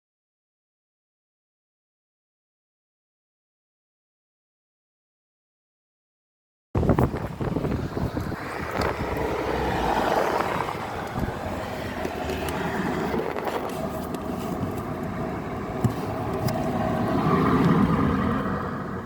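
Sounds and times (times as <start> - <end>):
car running: 6.8 - 19.0.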